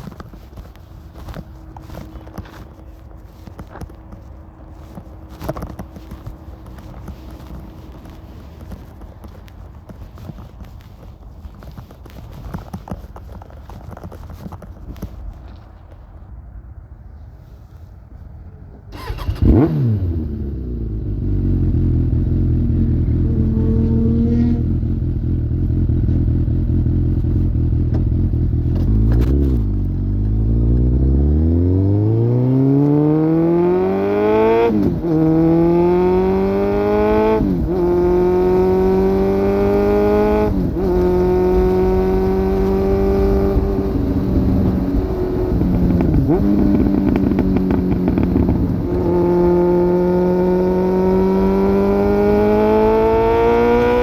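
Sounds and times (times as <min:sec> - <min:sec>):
motorcycle engine revving through gears: 0:18.9 - 0:54.0.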